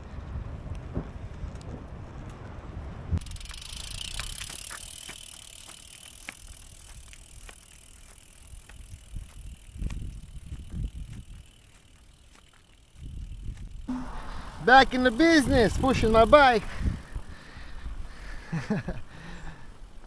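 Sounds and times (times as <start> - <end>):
wind gusts on microphone: 0.0 - 3.5, 8.6 - 11.6, 13.0 - 19.8
bicycle clicks and rattles: 3.2 - 13.9, 14.7 - 17.7
bicycle tyre hiss on road: 3.2 - 19.8.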